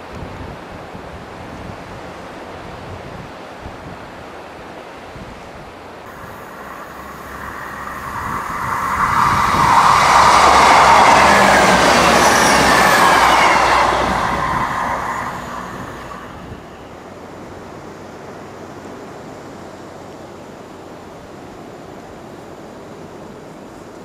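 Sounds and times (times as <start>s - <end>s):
whine dropping in pitch: 6.1s - 17.0s
train passing at speed: 6.1s - 17.5s.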